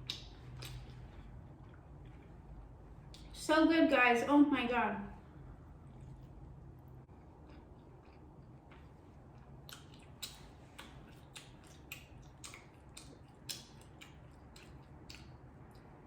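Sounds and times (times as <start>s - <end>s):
close chewing mouth sounds: 0.0s - 3.3s, 7.1s - 16.0s
low steady hum: 0.0s - 16.0s.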